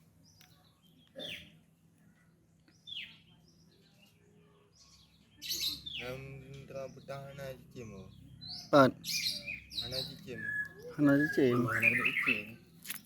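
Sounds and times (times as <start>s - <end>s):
bird whistled notes: 10.3s - 12.6s.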